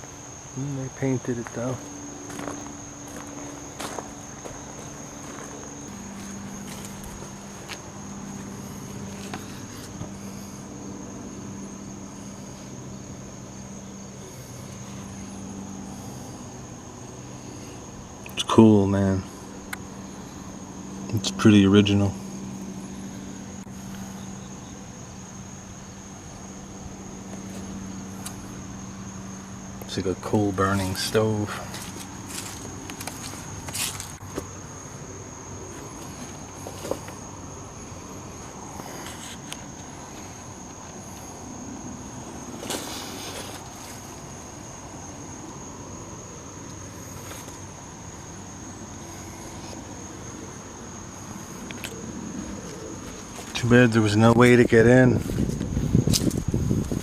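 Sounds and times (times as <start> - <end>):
constant high-pitched tone: 0.0 - 57.0
insects trilling: 0.0 - 57.0
low even hum: 0.0 - 57.0
crunching or rustling: 31.6 - 34.2, 42.4 - 44.2.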